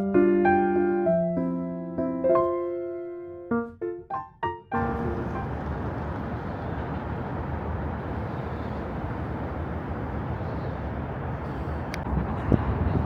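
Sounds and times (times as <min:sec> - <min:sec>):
piano note: 0:04.8 - 0:07.0
low rumble of city noise: 0:04.8 - 0:13.0.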